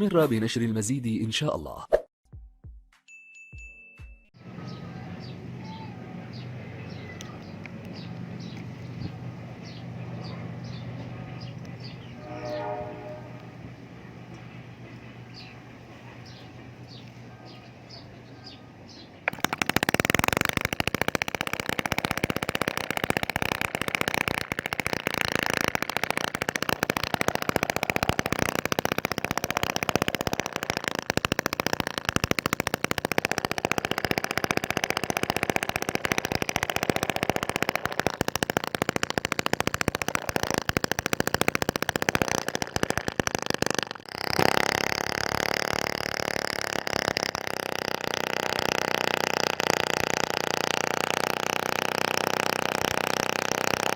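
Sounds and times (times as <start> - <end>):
small gasoline engine running: 4.4 - 53.9.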